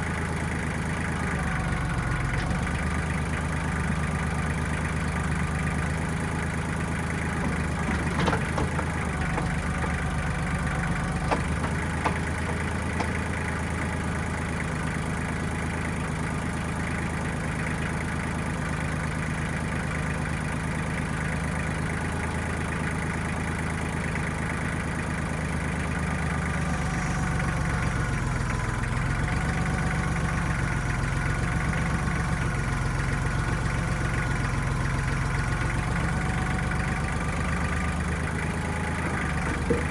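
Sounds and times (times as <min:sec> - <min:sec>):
diesel engine running: 0:00.0 - 0:39.9
sharp knocks: 0:11.2 - 0:13.4.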